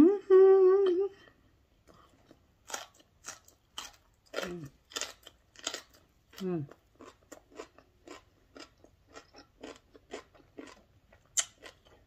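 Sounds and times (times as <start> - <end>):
person humming: 0.0 - 1.3
chewing with crisp crunches: 1.8 - 12.0
wet mouth clicks: 11.4 - 11.6.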